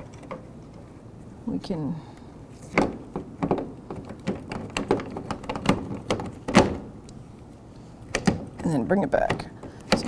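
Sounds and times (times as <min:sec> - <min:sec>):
door handle clicks and knocks: 0:02.8 - 0:06.9.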